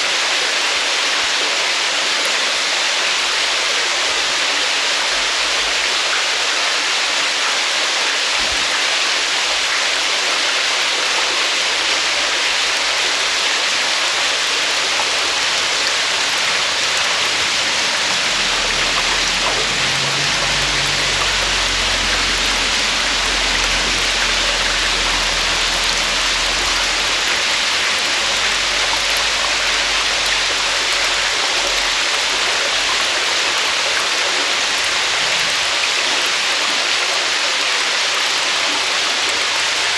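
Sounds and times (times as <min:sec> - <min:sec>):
waterfall pouring: 0:00.0 - 0:39.9
low rumble: 0:15.3 - 0:33.0.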